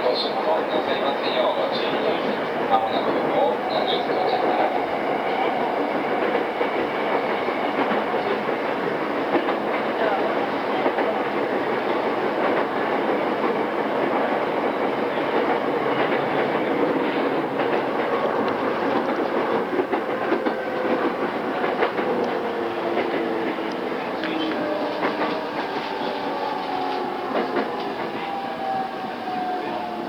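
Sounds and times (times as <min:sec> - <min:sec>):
train wheels clacking over joints: 0:01.3 - 0:30.0.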